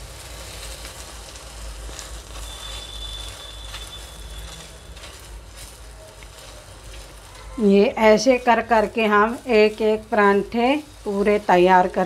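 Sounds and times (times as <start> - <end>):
flatbread sizzling on griddle: 0.0 - 12.0
thin high tone: 2.4 - 5.4.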